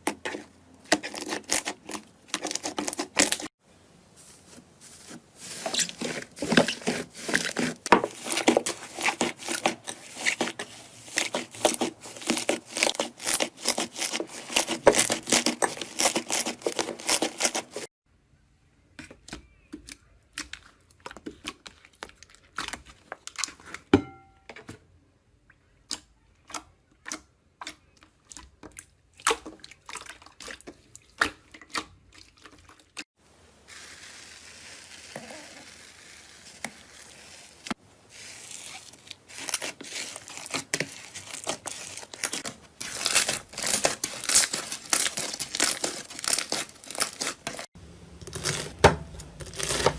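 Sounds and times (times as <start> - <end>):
slime crackling and popping: 33.7 - 47.7.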